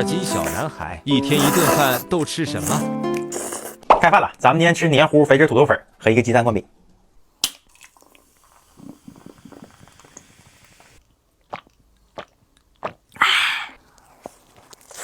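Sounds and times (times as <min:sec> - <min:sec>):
wet stirring and chewing: 0:00.1 - 0:03.9, 0:11.4 - 0:13.2, 0:13.8 - 0:15.0
loud crunchy bite: 0:01.3 - 0:03.8.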